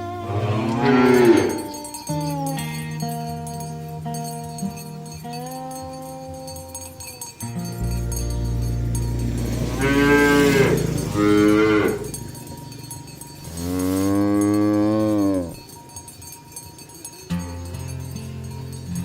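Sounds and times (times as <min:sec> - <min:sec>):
cows mooing: 0:00.0 - 0:02.0, 0:08.5 - 0:15.8.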